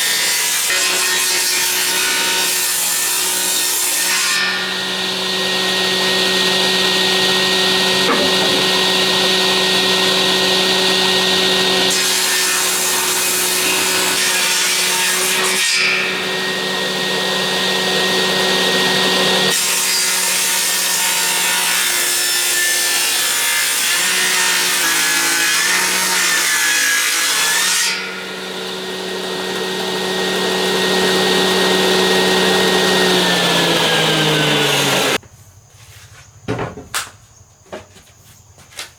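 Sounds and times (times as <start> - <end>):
power tool working timber: 0.0 - 35.2.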